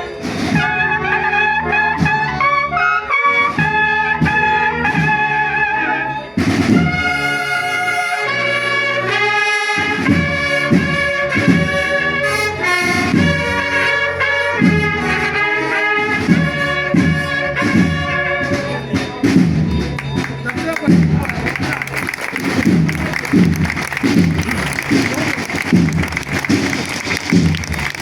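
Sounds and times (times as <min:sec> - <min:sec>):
brass band playing a tune: 0:00.0 - 0:28.0
steady beat: 0:09.7 - 0:28.0.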